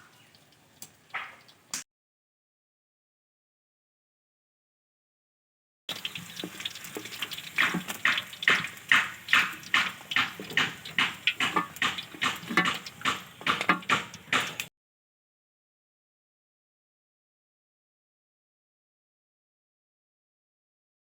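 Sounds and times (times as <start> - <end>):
chicken sizzling in oil: 5.9 - 14.7
spatula stirring: 5.9 - 14.7.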